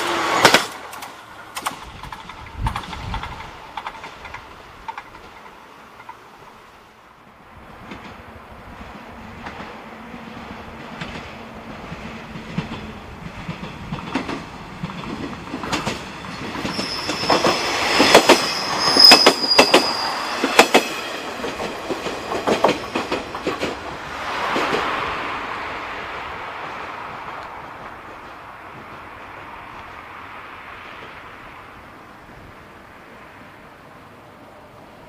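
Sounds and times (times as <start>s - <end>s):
train wheels clattering: 0.0s - 6.4s, 9.4s - 25.2s
high wheel squeal: 16.2s - 21.3s.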